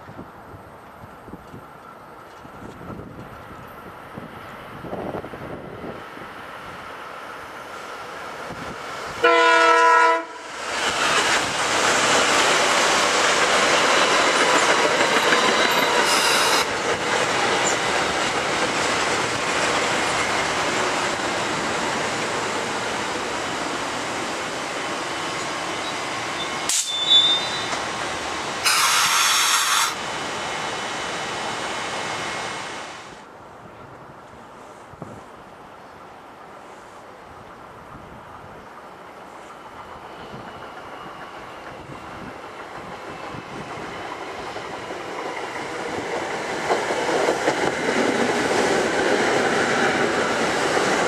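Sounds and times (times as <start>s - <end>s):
train wheels rushing on rails: 0.9s - 33.3s, 36.4s - 51.0s
train horn blast: 9.2s - 10.4s, 16.1s - 16.7s, 28.6s - 30.0s.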